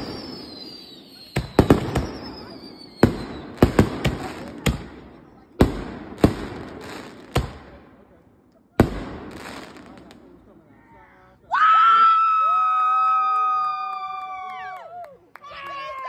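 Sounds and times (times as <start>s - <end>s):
falling firework whistle: 0.0s - 3.6s
firework bangs: 0.0s - 8.1s, 8.8s - 10.4s.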